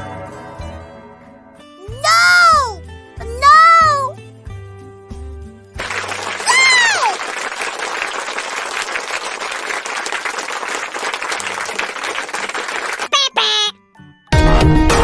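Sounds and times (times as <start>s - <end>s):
applause: 5.8s - 13.7s.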